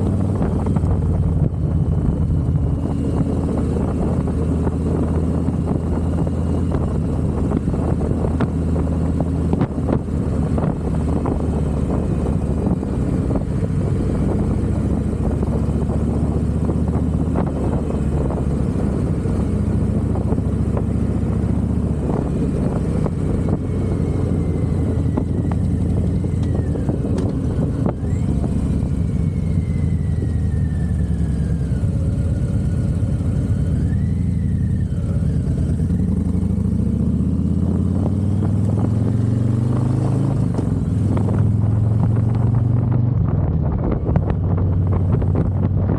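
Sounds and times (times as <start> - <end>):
motorcycle engine running: 0.0 - 45.9
faint high whistle: 29.0 - 31.6.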